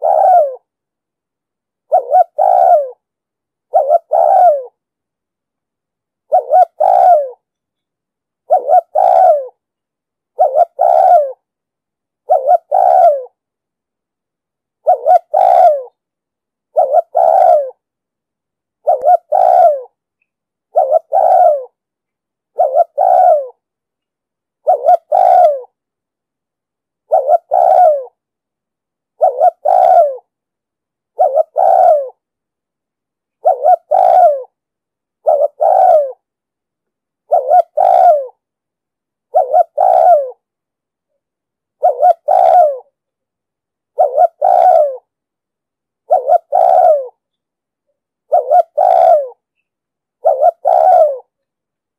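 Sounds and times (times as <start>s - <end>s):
dove cooing: 0.0s - 0.7s, 1.9s - 3.0s, 3.7s - 4.8s, 6.3s - 7.5s, 8.5s - 9.6s, 10.3s - 11.5s, 12.2s - 13.4s, 14.8s - 16.0s, 16.7s - 17.8s, 18.8s - 20.0s, 20.7s - 21.8s, 22.5s - 23.6s, 24.6s - 25.8s, 27.1s - 28.2s, 29.2s - 30.3s, 31.1s - 32.2s, 33.4s - 34.6s, 35.2s - 36.2s, 37.3s - 38.4s, 39.3s - 40.4s, 41.8s - 43.0s, 43.9s - 45.1s, 46.0s - 47.2s, 48.3s - 49.4s, 50.2s - 51.4s.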